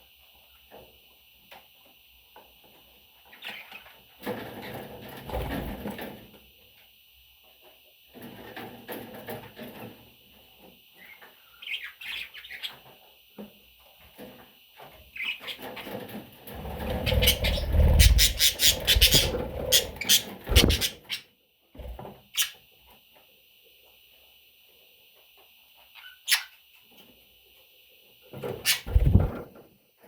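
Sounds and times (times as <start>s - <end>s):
baby budgerigars chirping: 11.0s - 12.8s, 15.2s - 15.9s, 16.6s - 21.2s, 26.0s - 26.6s.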